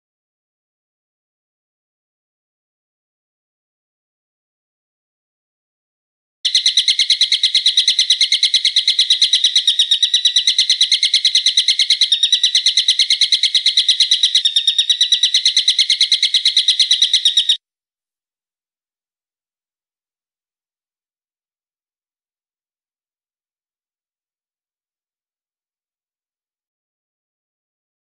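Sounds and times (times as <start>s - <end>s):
rapid high bird call: 6.5s - 17.6s.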